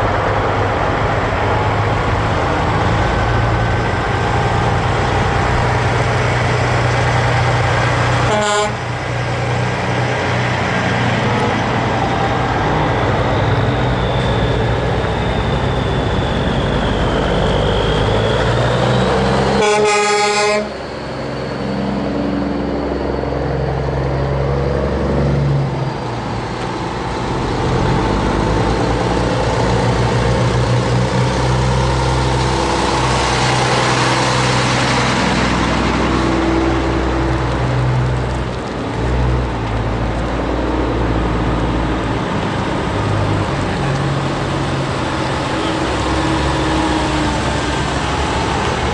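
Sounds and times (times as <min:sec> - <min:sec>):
heavy truck engines running: 0:00.0 - 0:48.9
truck horn: 0:08.2 - 0:09.0, 0:19.5 - 0:20.8.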